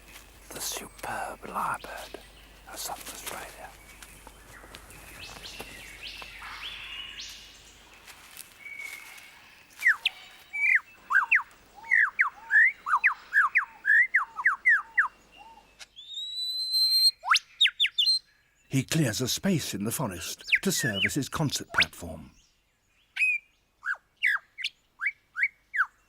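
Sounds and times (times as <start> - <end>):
faint forest bird calls: 0.0 - 26.0
lyrebird whistling: 9.8 - 18.2.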